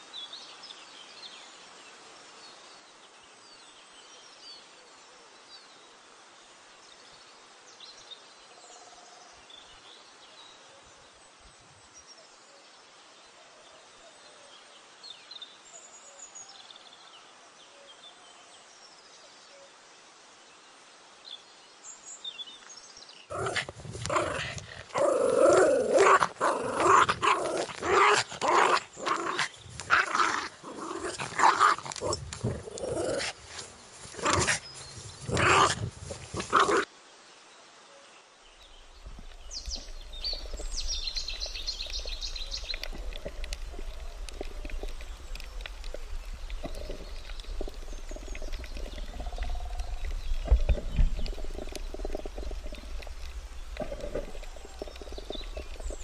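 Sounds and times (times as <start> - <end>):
dog barking and growling: 23.3 - 34.6, 35.2 - 36.9.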